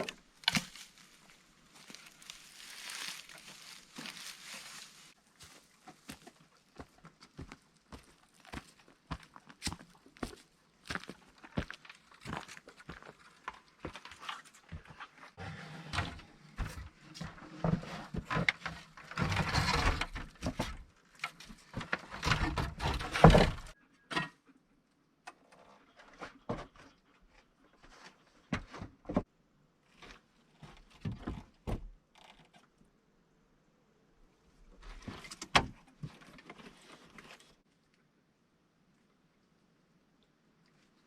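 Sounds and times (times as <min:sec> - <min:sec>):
objects knocking and thudding: 0:21.7 - 0:24.4.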